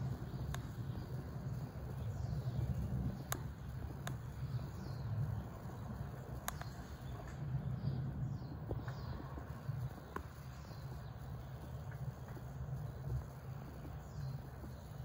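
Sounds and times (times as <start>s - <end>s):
sharp clicks: 0.0s - 5.0s, 5.7s - 7.4s
steady low rumble: 0.0s - 15.0s.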